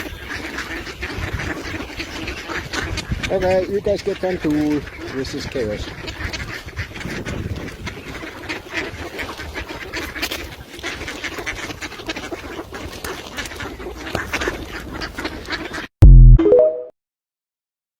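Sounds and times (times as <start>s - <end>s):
ducks quacking: 0.0s - 15.9s
loud tone with falling pitch: 16.0s - 16.9s.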